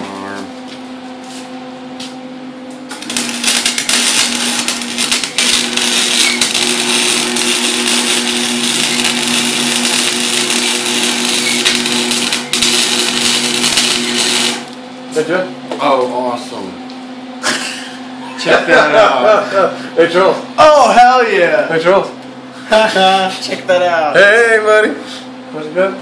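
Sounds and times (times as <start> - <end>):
steady hum: 0.0 - 26.0
welding arc crackling: 2.9 - 14.8.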